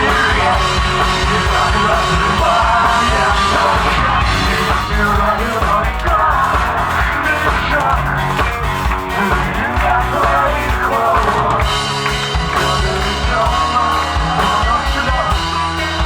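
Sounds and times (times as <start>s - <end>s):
rock band playing loudly: 0.0s - 16.0s.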